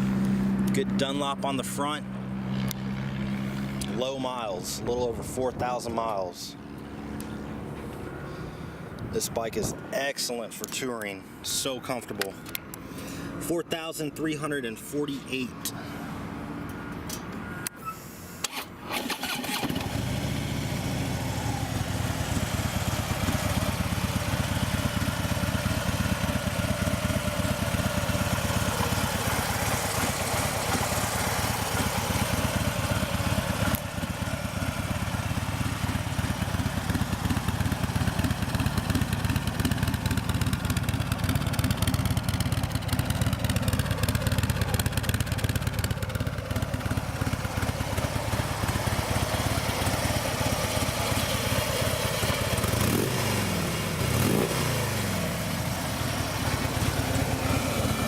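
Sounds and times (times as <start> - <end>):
motorcycle engine starting and idling: 15.8 - 58.0.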